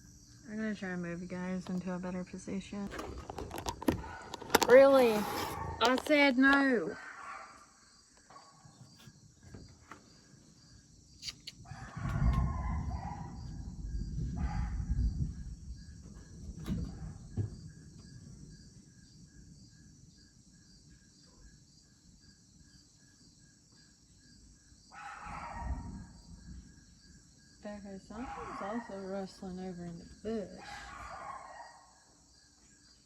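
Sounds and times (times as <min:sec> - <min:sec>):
insects chirping: 0:00.0 - 0:33.0
low rumble of thunder: 0:11.6 - 0:21.0, 0:25.1 - 0:31.7
animal call: 0:28.1 - 0:29.2.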